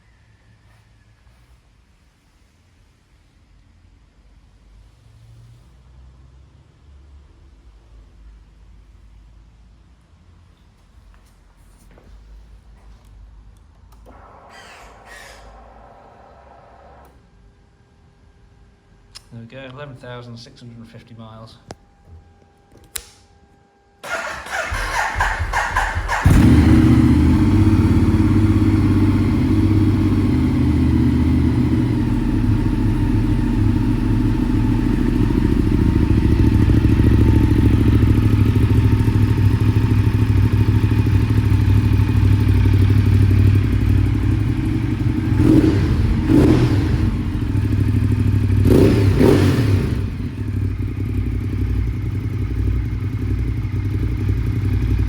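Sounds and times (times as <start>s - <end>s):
motorcycle engine idling and revving: 14.0s - 17.1s, 24.0s - 55.0s.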